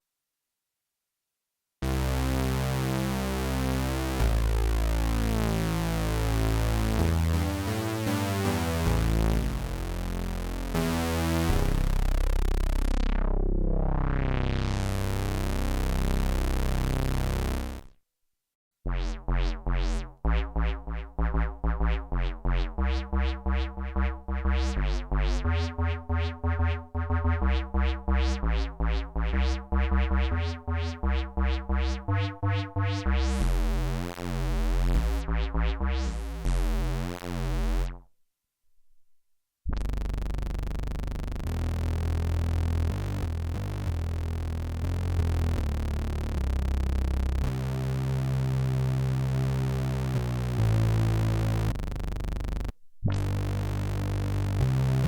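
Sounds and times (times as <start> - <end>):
plucky synthesizer notes: 1.8 - 17.9, 18.9 - 38.0, 39.7 - 55.0
synth bass line: 1.8 - 17.9, 18.9 - 38.0, 39.7 - 55.0
synthesizer held notes: 19.0 - 37.9.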